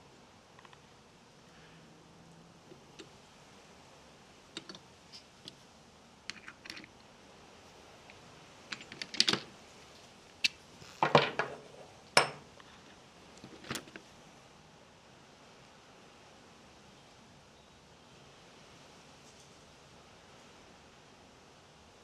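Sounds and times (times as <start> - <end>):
metal tools clicking and clattering: 8.7 - 9.5.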